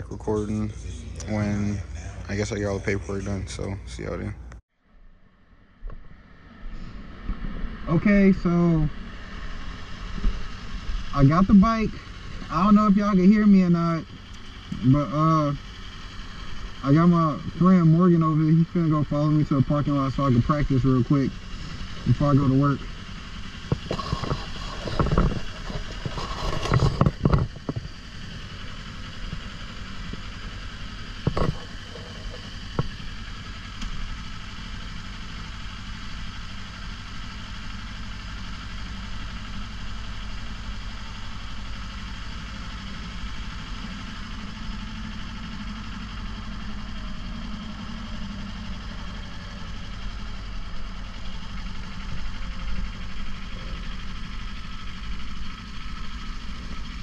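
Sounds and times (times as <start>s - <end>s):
motorcycle engine running: 5.6s - 57.0s
loud bumps: 23.2s - 33.2s.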